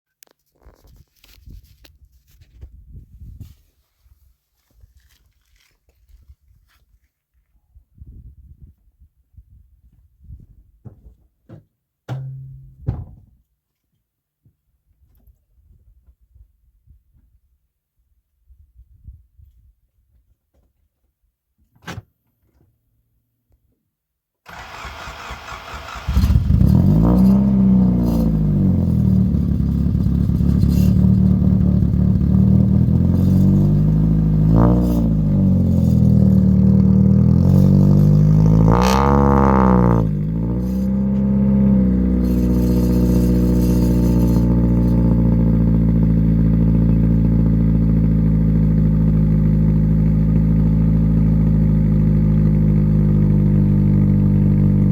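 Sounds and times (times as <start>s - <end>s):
starter motor cranking: 24.5s - 27.0s
car engine revving and idling: 24.6s - 54.9s.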